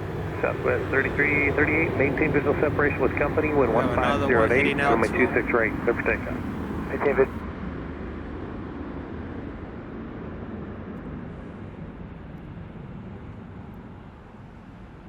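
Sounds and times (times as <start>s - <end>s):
distant jet airliner engines: 0.0s - 7.4s.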